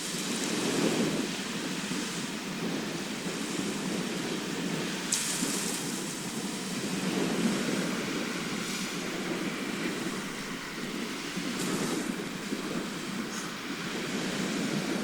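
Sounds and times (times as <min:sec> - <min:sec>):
hissing wash of breaking water: 0:00.0 - 0:15.0
sea waves rushing: 0:00.0 - 0:15.0.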